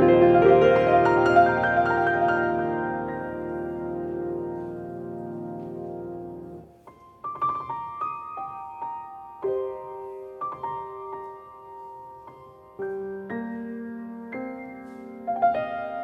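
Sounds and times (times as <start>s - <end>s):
slow piano notes and chords: 0.0s - 16.0s.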